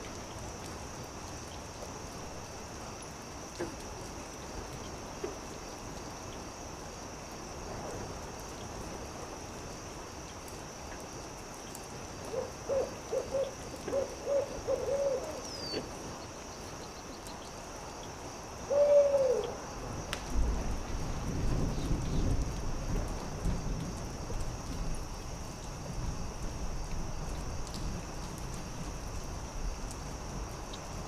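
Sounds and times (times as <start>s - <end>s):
steady high hiss: 0.0s - 31.0s
owl hooting: 12.3s - 15.8s, 18.7s - 19.6s.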